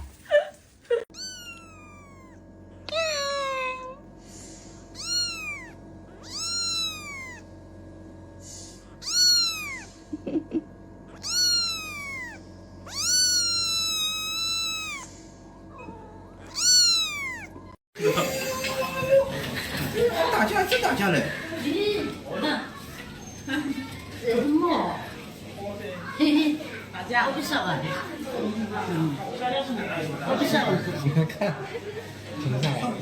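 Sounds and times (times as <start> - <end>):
cat meowing: 1.1 - 4.0, 4.9 - 7.5, 9.0 - 10.0, 11.1 - 17.8.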